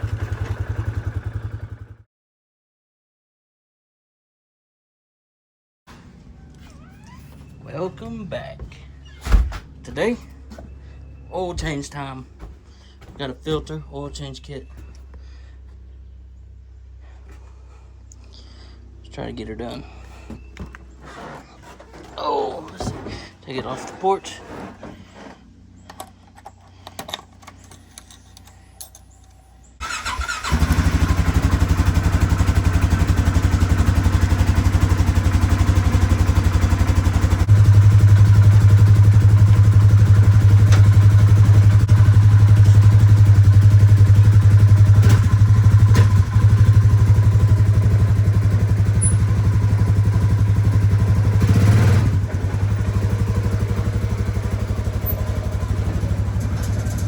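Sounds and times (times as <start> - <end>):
atv engine running: 0.0 - 2.0, 6.2 - 13.4, 25.0 - 57.0.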